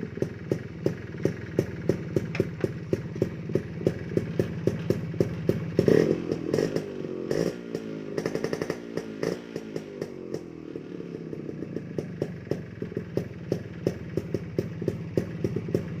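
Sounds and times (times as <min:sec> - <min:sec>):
motorcycle throttle blips: 0:00.0 - 0:10.4
motorcycle engine idling: 0:00.0 - 0:16.0.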